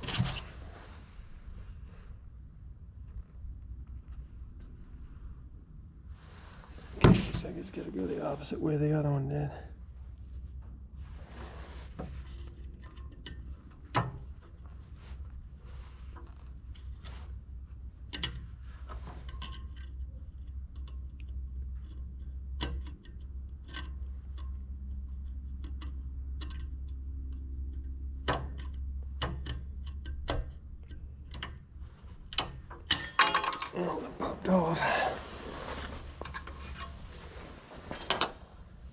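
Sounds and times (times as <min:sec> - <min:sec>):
steady low rumble: 0:33.7 - 0:38.9.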